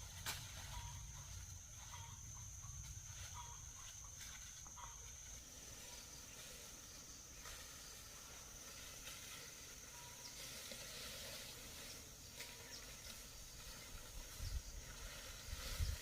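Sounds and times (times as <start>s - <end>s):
faint outdoor hiss: 0.0s - 16.0s.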